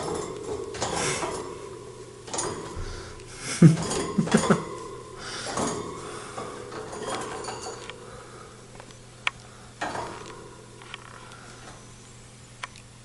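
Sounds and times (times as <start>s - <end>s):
wire cage clinks and rattles: 0.0s - 2.8s, 3.5s - 8.2s, 9.8s - 11.8s.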